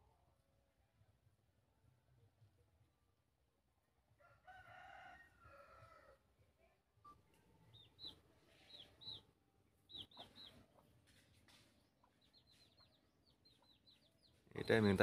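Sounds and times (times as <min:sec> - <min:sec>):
faint high bird chirps: 0:07.0 - 0:15.0.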